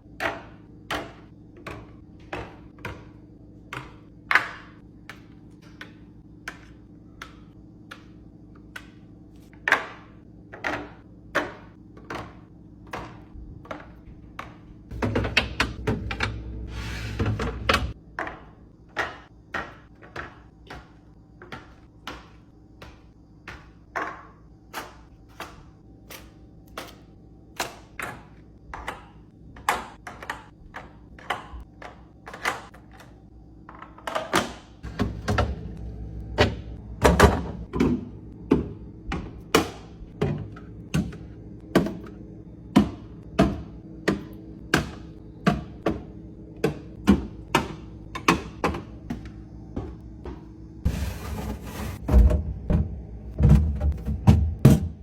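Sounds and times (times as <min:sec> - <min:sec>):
items thunking on fridge shelves: 0:00.0 - 0:55.0
low steady hum: 0:34.8 - 0:55.0.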